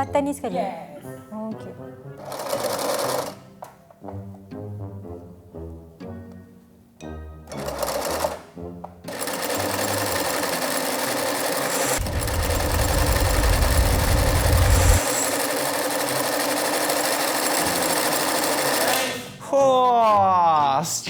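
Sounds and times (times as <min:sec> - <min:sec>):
sewing machine stitching: 0:02.2 - 0:03.5, 0:07.5 - 0:08.5, 0:09.1 - 0:19.2
deep low hum: 0:12.0 - 0:15.0.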